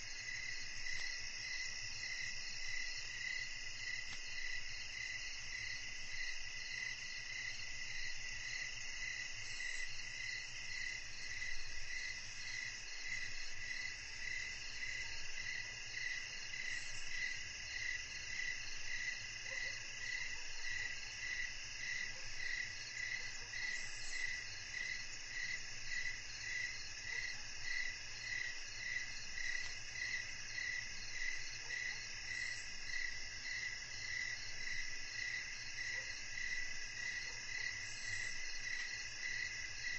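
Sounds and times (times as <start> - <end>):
crickets trilling: 0.1 - 39.9
high-pitched pulsing insect call: 32.2 - 39.9.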